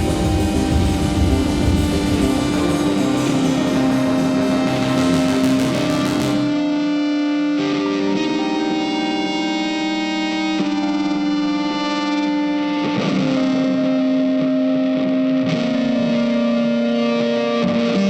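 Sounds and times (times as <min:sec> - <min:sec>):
distorted electric guitar chords: 0:00.0 - 0:18.0.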